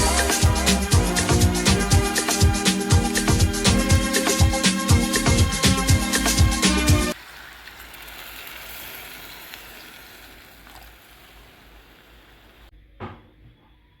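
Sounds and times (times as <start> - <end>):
pork sizzling in a pot: 7.1 - 12.7.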